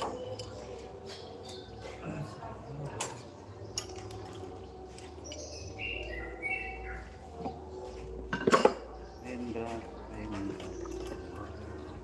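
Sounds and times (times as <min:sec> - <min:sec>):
bird chirps: 0:00.0 - 0:02.3, 0:03.2 - 0:08.1.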